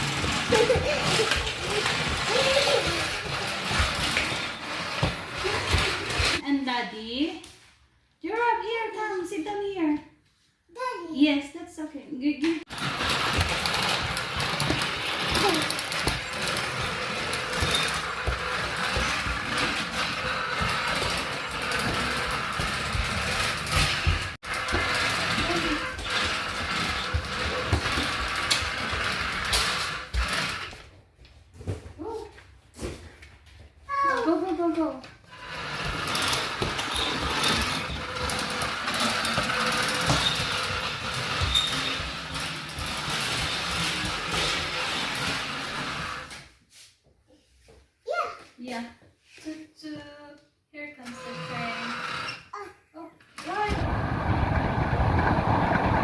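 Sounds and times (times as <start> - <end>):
toy motor whirring: 0.0 - 6.4, 12.7 - 30.8, 35.3 - 46.4, 51.0 - 52.7.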